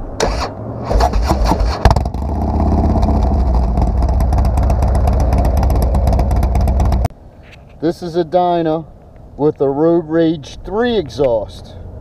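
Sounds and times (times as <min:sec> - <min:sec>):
motorcycle engine revving: 0:00.2 - 0:07.1.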